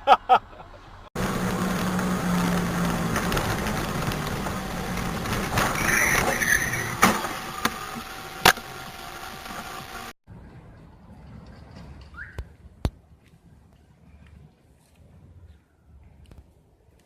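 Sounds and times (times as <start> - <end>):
car engine and road noise: 0.0 - 13.7.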